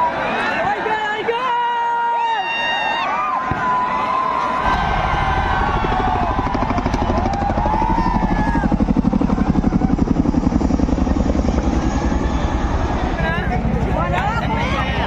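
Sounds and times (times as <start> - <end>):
crowd shouting: 0.0 - 15.0
helicopter rotor thudding: 4.6 - 15.0.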